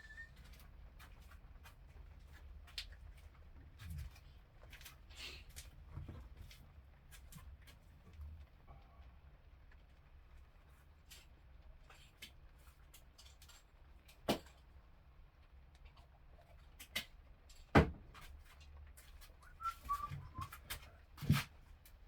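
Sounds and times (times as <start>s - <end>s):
faint squeak: 0.0s - 0.5s, 19.4s - 21.0s.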